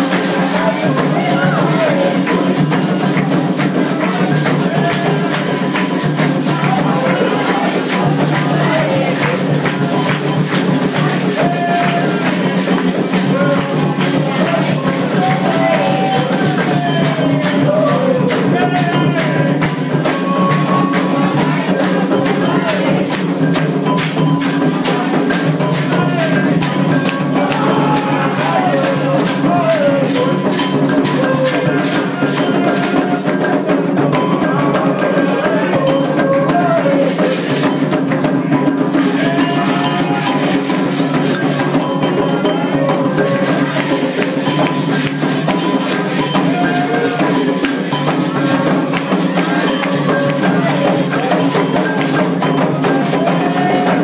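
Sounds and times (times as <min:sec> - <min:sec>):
bell rhythm: 0:00.0 - 0:54.0
group singing a chant: 0:00.0 - 0:54.0
hand drums: 0:00.0 - 0:54.0.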